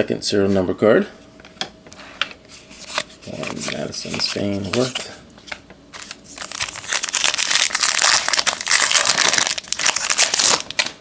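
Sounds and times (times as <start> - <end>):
plastic wrapper crinkling: 6.0 - 11.0.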